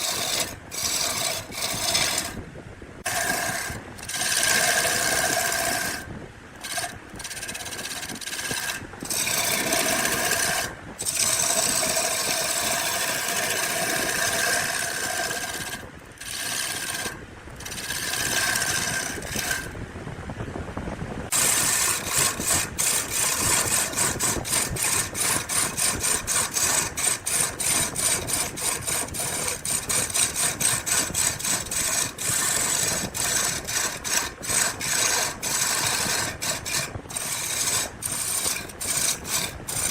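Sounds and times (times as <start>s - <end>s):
rhythmic rasping on wood: 0.0s - 2.4s, 3.0s - 19.8s, 21.3s - 39.9s
power tool whining: 6.6s - 19.8s, 21.3s - 39.9s.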